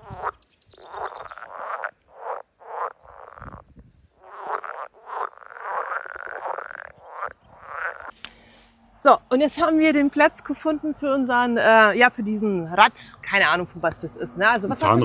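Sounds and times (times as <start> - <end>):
frogs croaking: 0.0 - 8.2.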